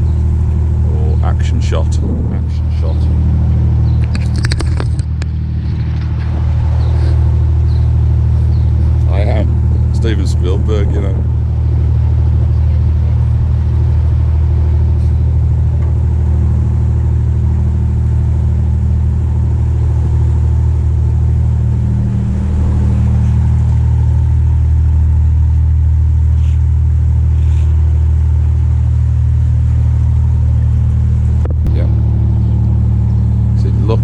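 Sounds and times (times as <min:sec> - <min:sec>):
boat diesel engine running: 0:00.0 - 0:34.0.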